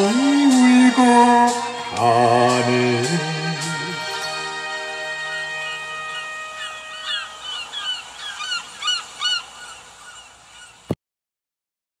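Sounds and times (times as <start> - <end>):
held music notes: 0.0 - 8.7
birds calling: 0.0 - 11.0.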